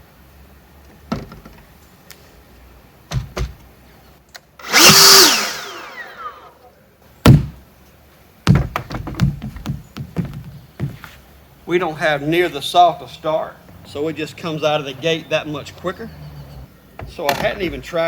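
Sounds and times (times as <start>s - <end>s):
leaf blower blast: 4.6s - 6.6s
sharp knocks: 7.2s - 7.6s, 8.4s - 11.0s.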